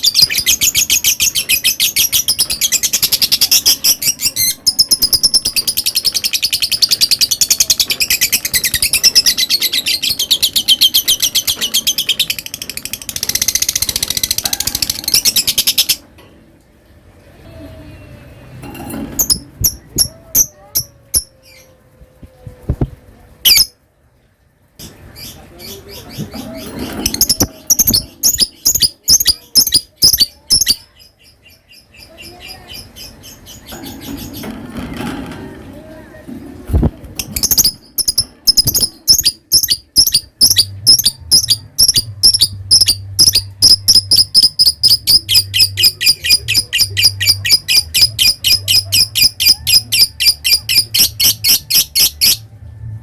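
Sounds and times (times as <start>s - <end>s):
lovebird shrill rapid chirps: 23.5s - 23.7s, 27.0s - 30.8s, 37.4s - 52.4s
bird chattering: 25.2s - 34.4s, 37.2s - 52.4s.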